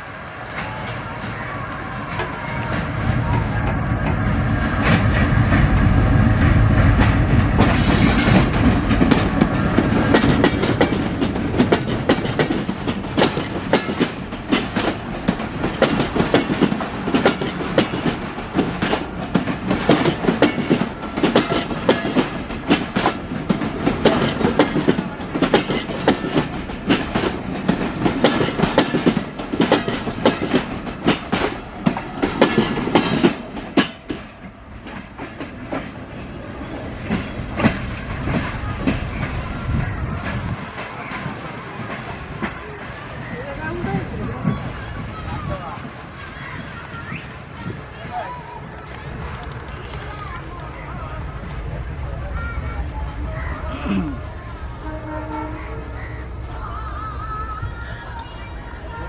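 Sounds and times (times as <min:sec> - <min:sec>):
diesel locomotive engine rumbling: 0:00.0 - 0:59.0
coaches clattering over rail joints: 0:00.2 - 0:50.9.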